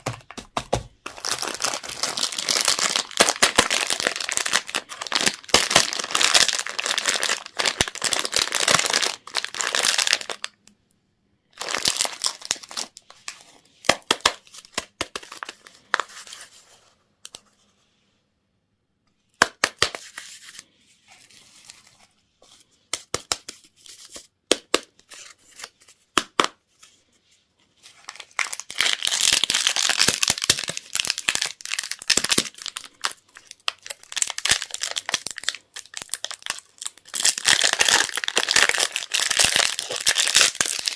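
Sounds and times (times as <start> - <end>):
plastic candy wrappers crinkling: 0.0 - 10.7, 11.5 - 16.3, 27.9 - 40.9.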